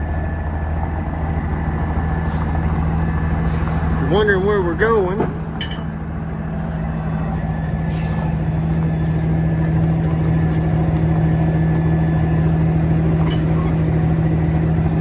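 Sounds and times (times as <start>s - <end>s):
truck diesel engine humming: 0.0s - 15.0s.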